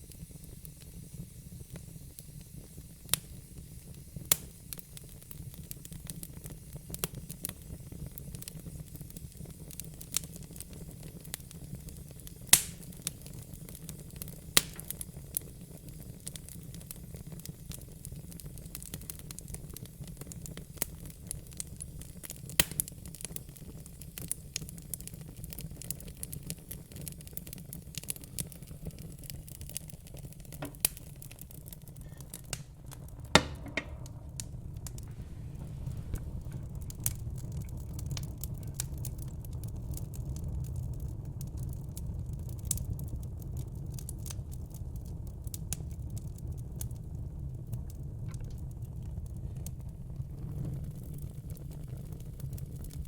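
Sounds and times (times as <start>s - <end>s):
wood fire crackling and popping: 0.0s - 53.0s
steady low rumble: 31.6s - 40.7s.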